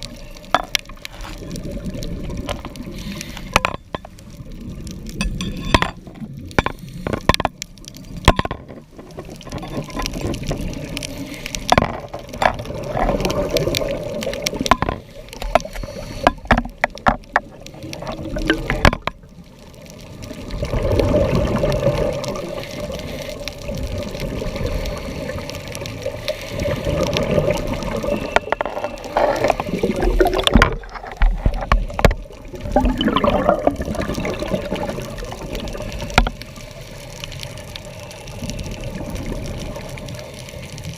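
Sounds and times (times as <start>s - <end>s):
underwater clicks and knocks: 0.0s - 2.8s, 3.4s - 4.4s, 5.1s - 20.0s, 27.0s - 35.0s, 35.6s - 36.5s
water bubbling and sloshing: 0.0s - 40.9s.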